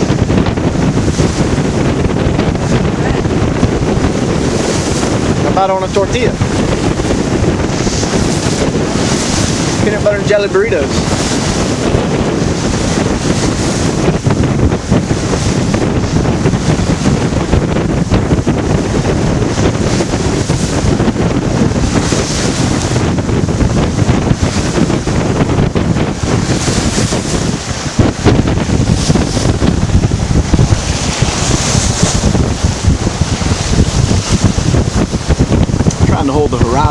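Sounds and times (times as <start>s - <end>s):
waves rushing against boat: 0.0s - 36.9s
wind buffeting microphone: 0.0s - 36.9s.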